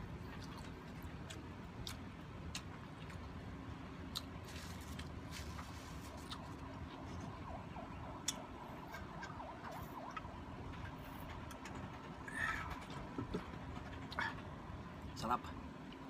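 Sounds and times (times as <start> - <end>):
person chewing: 0.1 - 7.3.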